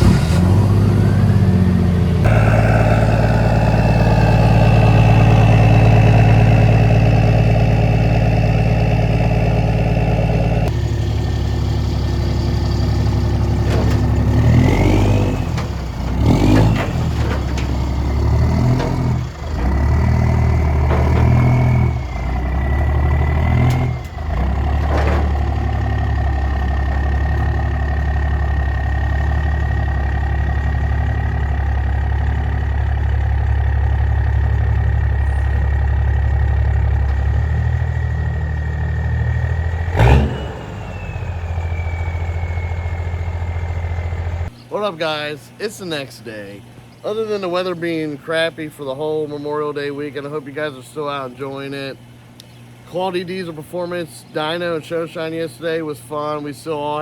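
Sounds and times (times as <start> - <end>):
engine whistle: 0.0 - 17.4, 37.1 - 44.6
diesel truck engine idling and revving: 0.0 - 44.7.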